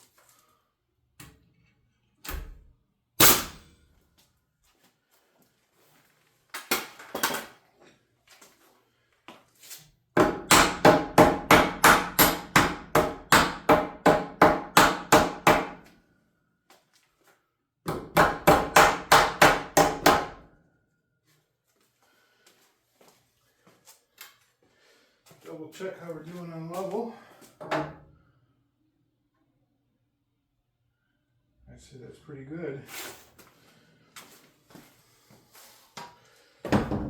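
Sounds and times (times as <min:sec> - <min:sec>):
hammer striking wood: 0:10.2 - 0:15.8, 0:17.9 - 0:20.4.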